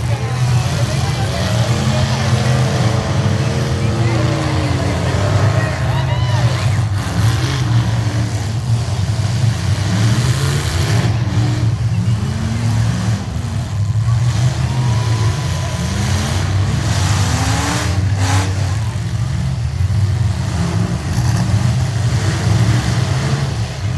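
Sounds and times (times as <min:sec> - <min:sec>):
truck engines revving: 0:00.0 - 0:23.9.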